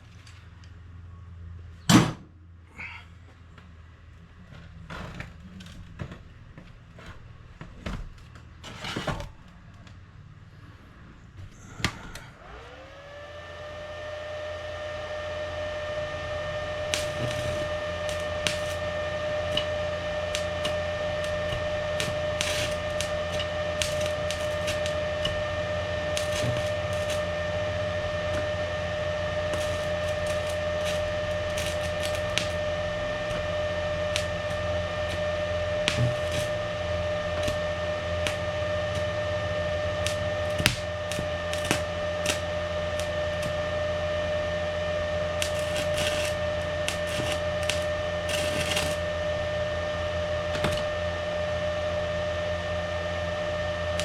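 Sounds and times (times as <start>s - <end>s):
electric motor whining: 4.2s - 54.0s
sharp clicks and crackles: 16.8s - 43.7s, 45.2s - 49.1s.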